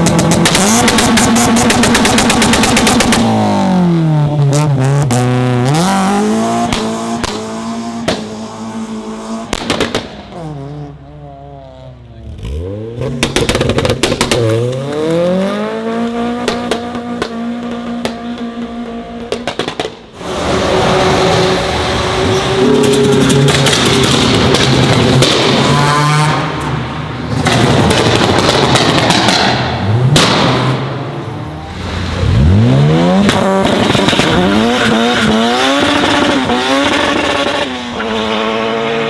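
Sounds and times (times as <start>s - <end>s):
sharp exhaust pops: 0.0s - 3.3s, 13.1s - 14.6s, 16.4s - 20.0s, 27.3s - 30.9s
car engines revving: 0.0s - 39.0s.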